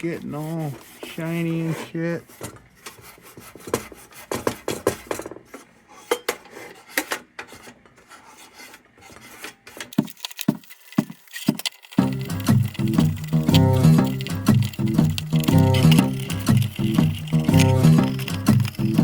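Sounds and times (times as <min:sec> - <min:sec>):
steel wool scrubbing metal: 0:00.0 - 0:04.6, 0:05.9 - 0:19.0.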